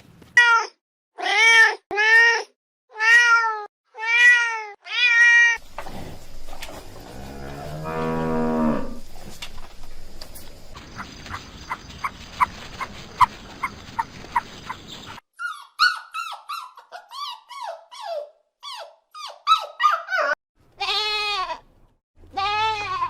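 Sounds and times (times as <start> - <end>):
faint hiss: 5.6 - 10.8
goat or sheep bleat: 20.8 - 21.6, 22.3 - 23.0.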